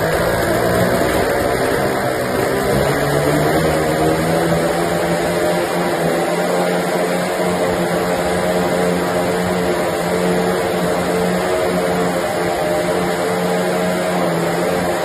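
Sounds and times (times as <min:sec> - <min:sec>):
piston engine running: 0:00.0 - 0:15.0.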